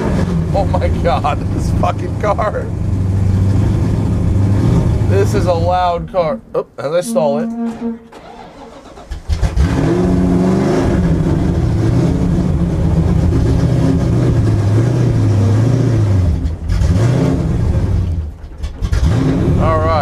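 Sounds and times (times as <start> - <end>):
loud car engine idling: 0.0 - 6.0.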